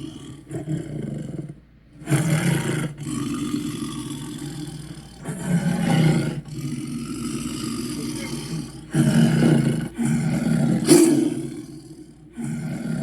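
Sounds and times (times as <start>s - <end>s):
quiet growl: 0.0s - 13.0s
deep rough dinosaur roars: 2.1s - 13.0s.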